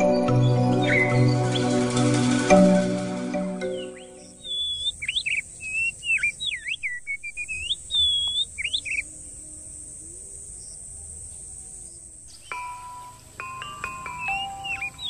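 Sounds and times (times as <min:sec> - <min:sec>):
songbird whistling: 0:00.0 - 0:02.2, 0:03.6 - 0:09.1, 0:12.3 - 0:15.0
steady high hiss: 0:00.0 - 0:15.0.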